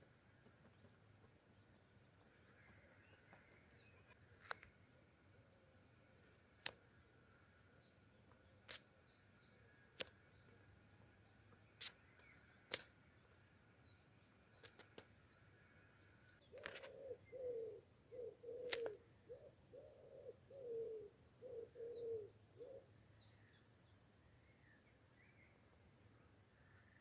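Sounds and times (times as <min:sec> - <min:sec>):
small birds chirping: 0:00.0 - 0:27.0
pigeon cooing: 0:16.6 - 0:22.9.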